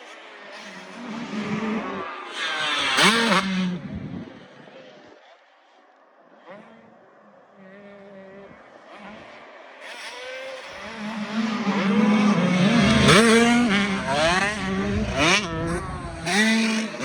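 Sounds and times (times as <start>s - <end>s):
race engines revving: 0.6s - 3.8s, 9.0s - 17.0s.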